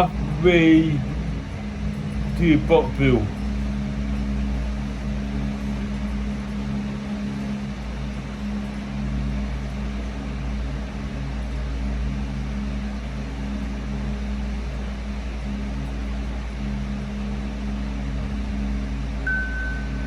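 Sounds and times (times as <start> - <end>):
mechanical hum: 0.0 - 20.0
low rumble: 19.1 - 20.0.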